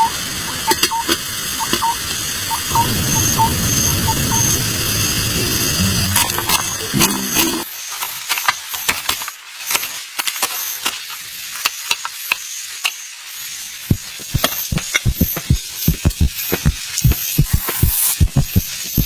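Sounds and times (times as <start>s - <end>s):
cooking utensils clicking and tapping: 0.5s - 1.9s
heavier knocks: 13.9s - 17.6s.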